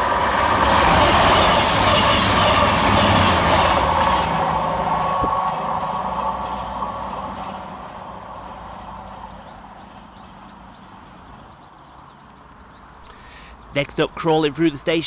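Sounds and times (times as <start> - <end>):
diesel train rumble: 0.0 - 15.0
small birds chirping: 8.2 - 15.0.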